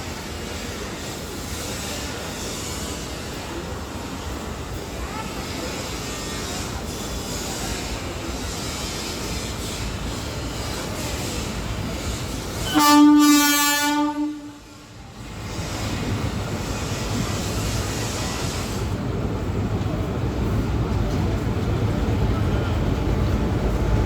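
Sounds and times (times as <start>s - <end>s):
train rumbling: 0.0s - 24.0s
train horn blast: 12.6s - 14.9s.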